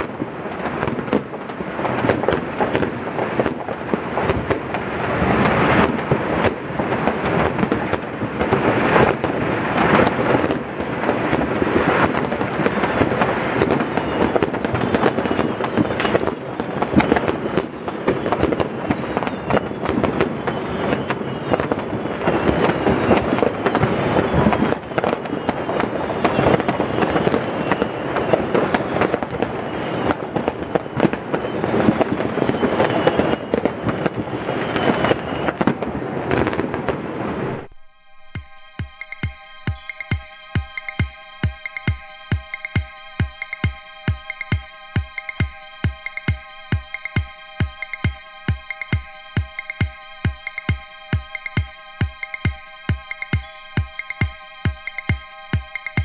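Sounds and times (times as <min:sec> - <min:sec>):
faint rocket whistles: 0:00.0 - 0:56.0
fireworks and firecrackers banging: 0:00.0 - 0:56.0.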